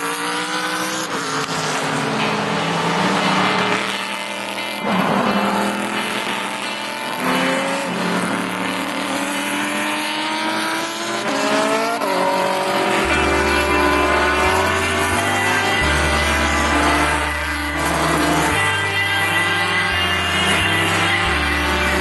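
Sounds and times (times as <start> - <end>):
race car engines revving: 0.0 - 22.0
bass line music: 11.4 - 22.0.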